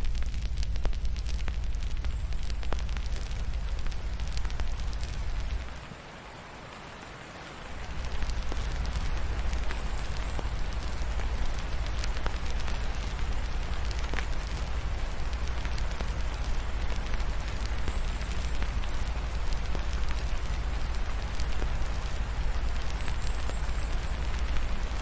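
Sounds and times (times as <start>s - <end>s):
low rumble: 0.0s - 5.8s
rain hissing: 0.0s - 25.0s
wood fire crackling: 0.0s - 25.0s.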